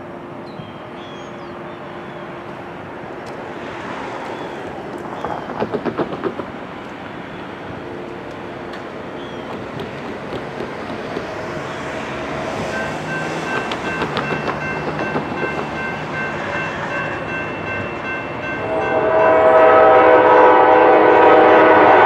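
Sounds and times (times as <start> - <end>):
freight train rumbling past: 0.0 - 22.0
wheels clacking over rail joints: 3.2 - 18.6.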